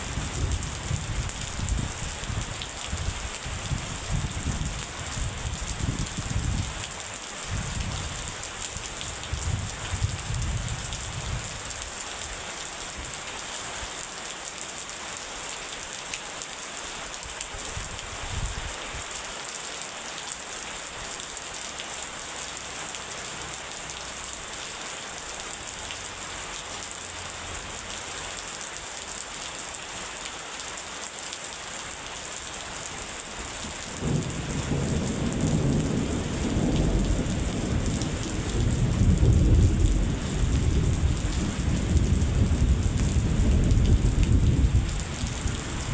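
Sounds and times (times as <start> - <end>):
steady rain falling: 0.0 - 45.9
thunder rumbling: 33.8 - 45.9.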